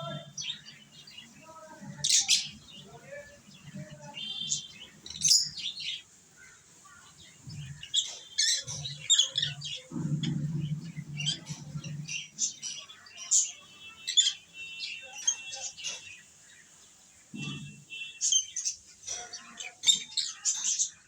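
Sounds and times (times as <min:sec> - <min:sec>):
lovebirds chirping: 0:00.0 - 0:21.0
low rumbling noise: 0:08.8 - 0:12.6.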